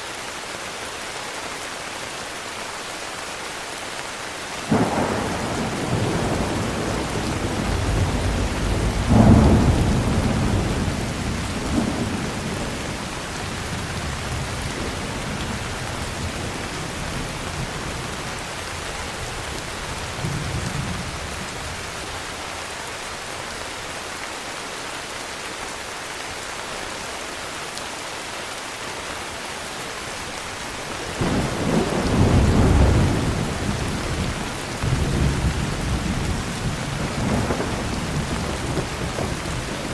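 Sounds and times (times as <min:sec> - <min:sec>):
heavy rain: 0:00.0 - 0:39.9
thunder rumbling and cracking: 0:04.7 - 0:21.9, 0:31.0 - 0:39.9.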